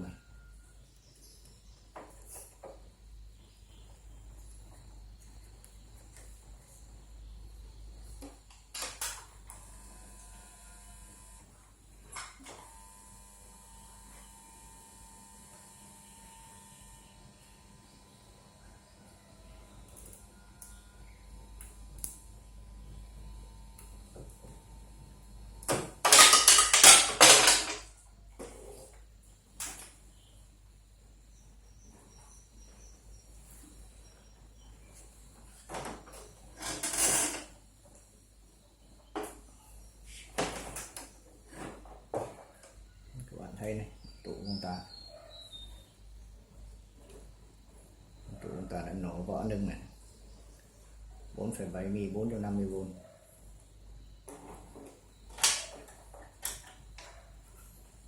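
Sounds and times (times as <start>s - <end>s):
hand tools clicking and knocking: 26.0s - 27.9s.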